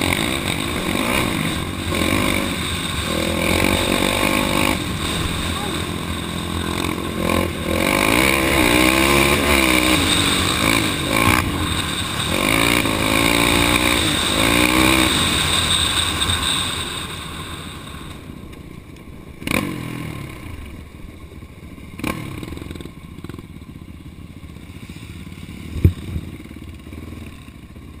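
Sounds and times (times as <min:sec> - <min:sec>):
off-road vehicle engine revving: 0:00.0 - 0:18.2, 0:19.4 - 0:20.8, 0:22.0 - 0:23.4.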